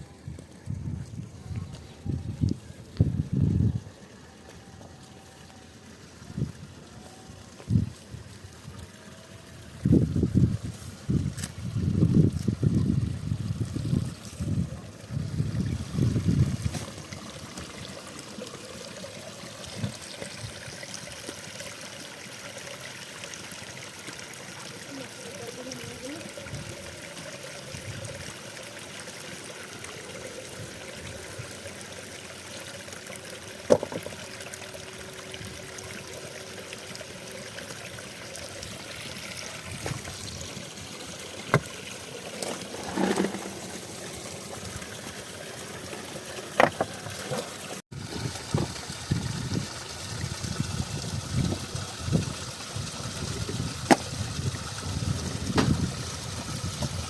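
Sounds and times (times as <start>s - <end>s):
spring water trickling: 0.0s - 57.0s.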